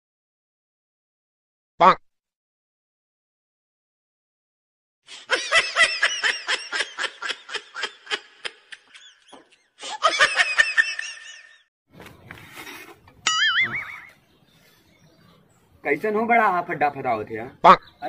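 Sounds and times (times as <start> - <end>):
high-pitched laughter: 5.1 - 11.6.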